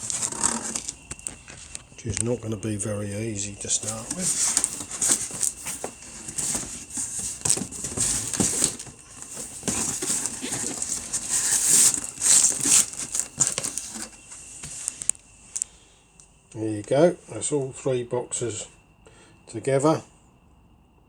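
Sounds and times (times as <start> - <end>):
cardboard scraping and rubbing: 0.0 - 1.2, 3.7 - 14.8.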